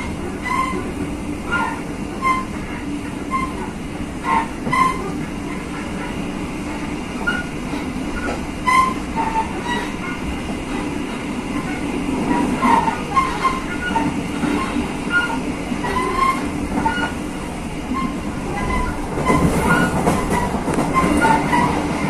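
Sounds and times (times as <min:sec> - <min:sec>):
train rumbling: 0:00.0 - 0:22.0
wheel squeaks: 0:04.3 - 0:05.1, 0:12.3 - 0:17.2, 0:17.9 - 0:21.8.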